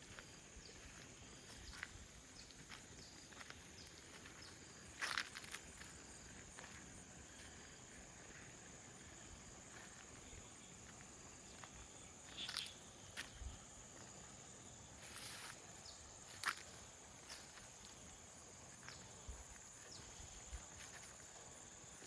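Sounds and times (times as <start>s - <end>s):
crunchy footsteps on ground: 0.0s - 14.2s, 15.0s - 22.0s
insects droning: 0.0s - 22.0s.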